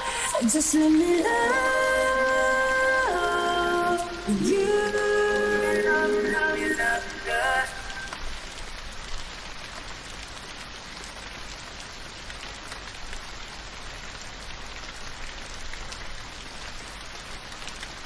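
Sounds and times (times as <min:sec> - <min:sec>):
gentle rain falling: 0:00.0 - 0:18.0
raindrops ticking: 0:00.0 - 0:18.0.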